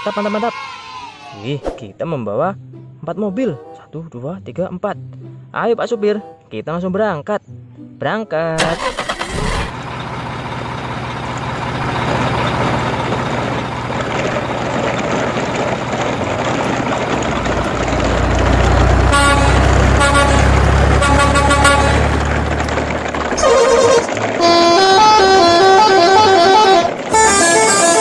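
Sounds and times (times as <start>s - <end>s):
truck engine running: 8.6s - 28.0s
short horn toots: 19.1s - 22.2s.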